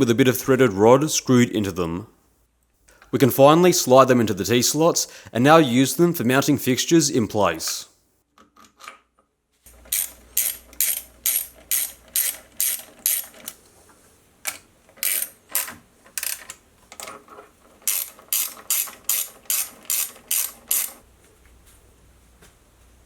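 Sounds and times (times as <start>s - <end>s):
ratchet wrench clicking: 9.9s - 13.5s, 15.0s - 16.6s, 17.9s - 21.0s.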